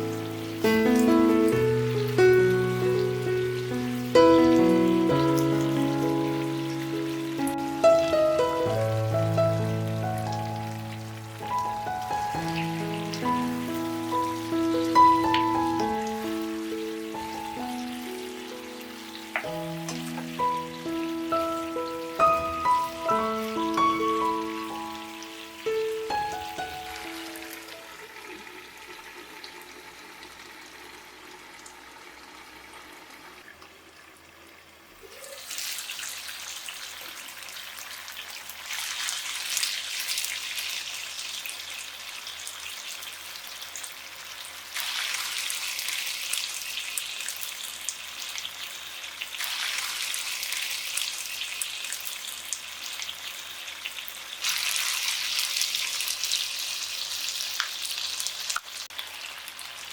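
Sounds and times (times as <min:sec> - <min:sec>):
faint music: 0:00.0 - 0:28.4
food sizzling in a pan: 0:00.0 - 0:33.2, 0:35.0 - 0:59.9.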